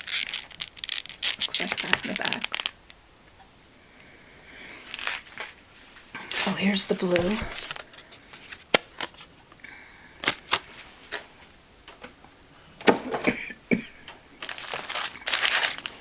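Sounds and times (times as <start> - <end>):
plastic packaging crinkling: 0.0 - 3.0, 4.8 - 5.6, 6.3 - 9.3, 10.2 - 11.3, 14.4 - 16.0.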